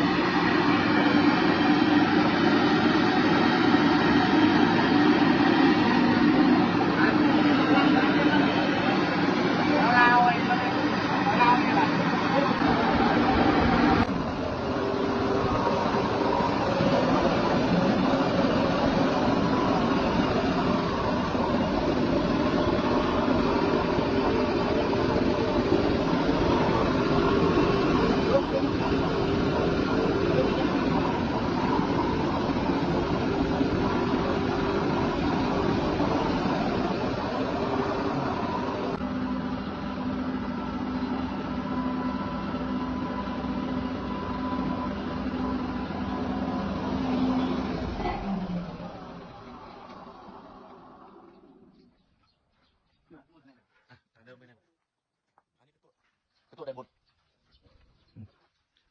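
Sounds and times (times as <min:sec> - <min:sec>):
milling machinery drone: 0:00.0 - 0:52.3.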